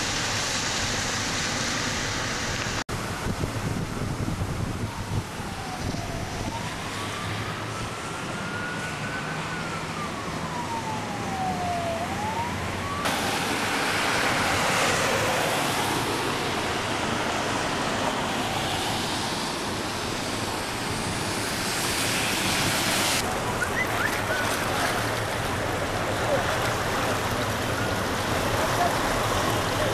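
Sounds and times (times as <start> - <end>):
siren wailing: 4.4 - 16.4
steady rushing noise: 12.6 - 29.9.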